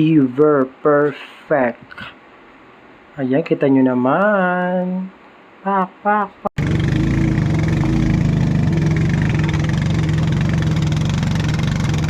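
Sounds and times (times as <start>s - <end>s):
engine idling: 6.6s - 12.0s.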